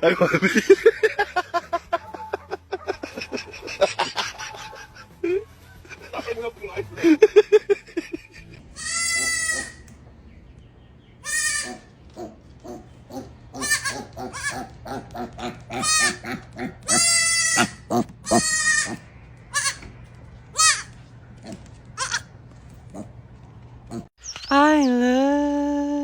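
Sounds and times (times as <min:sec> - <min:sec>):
animal calling: 0:08.4 - 0:10.0, 0:11.1 - 0:24.1.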